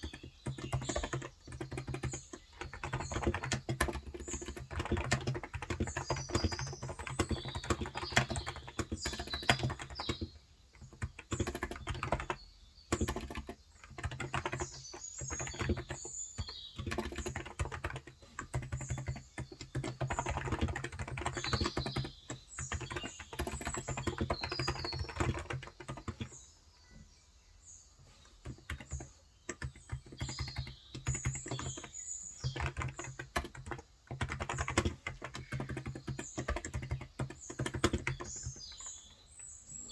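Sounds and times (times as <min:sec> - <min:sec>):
soft keyboard typing: 0:00.0 - 0:26.5, 0:28.0 - 0:39.9
small birds chirping: 0:00.0 - 0:39.9.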